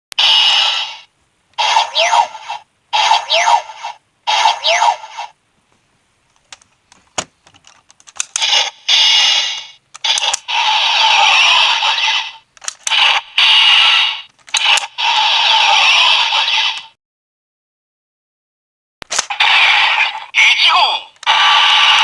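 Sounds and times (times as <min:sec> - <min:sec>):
tinny electronic toy sound effects: 0:00.2 - 0:05.3, 0:08.2 - 0:16.9.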